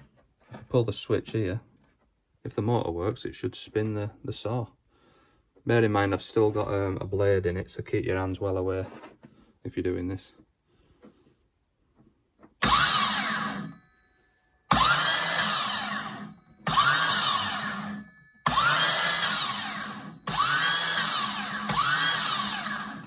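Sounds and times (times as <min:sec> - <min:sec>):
circular saw motor whining: 0:12.6 - 0:13.8, 0:14.7 - 0:23.0.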